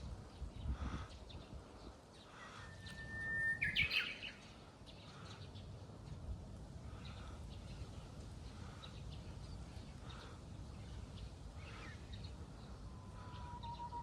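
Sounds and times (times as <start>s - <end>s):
wind noise on microphone: 0.0s - 2.0s
bush warbler singing: 0.0s - 14.0s
faint bird calls: 0.6s - 5.6s, 9.9s - 14.0s.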